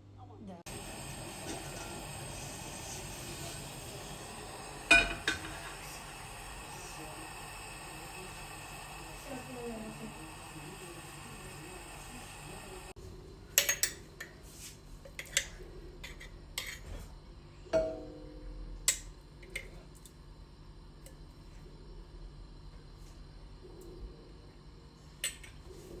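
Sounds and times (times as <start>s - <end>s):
dishes and utensils clinking: 4.9s - 5.8s.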